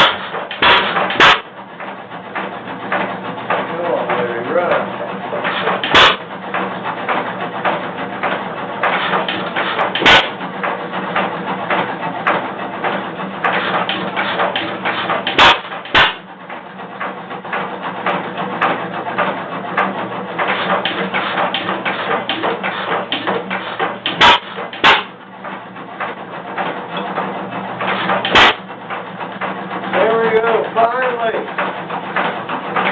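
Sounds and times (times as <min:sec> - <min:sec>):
engine firing bangs: 0:00.0 - 0:01.6, 0:02.4 - 0:06.3, 0:07.1 - 0:12.5, 0:13.4 - 0:16.3, 0:18.0 - 0:25.2, 0:27.8 - 0:28.7
gas engine clattering: 0:00.0 - 0:32.9.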